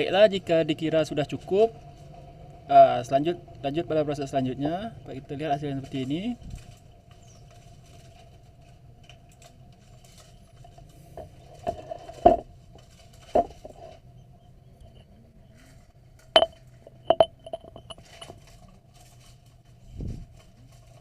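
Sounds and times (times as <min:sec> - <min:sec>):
faint steady hum: 0:00.0 - 0:21.0
small objects knocking and clicking: 0:16.4 - 0:18.4.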